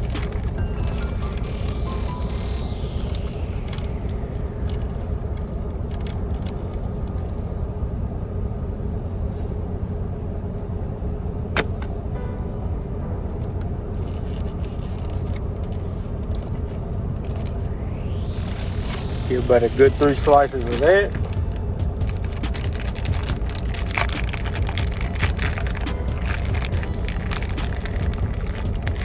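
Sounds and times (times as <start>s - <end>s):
truck engine idling: 18.1s - 29.0s
food packaging rustling: 20.0s - 29.0s.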